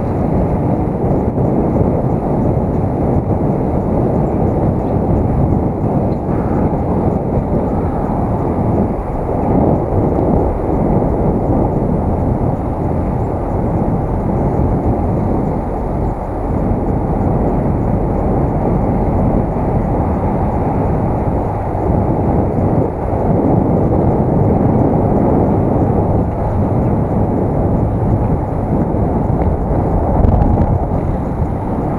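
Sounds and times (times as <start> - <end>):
wind rumble on microphone: 0.0 - 31.9.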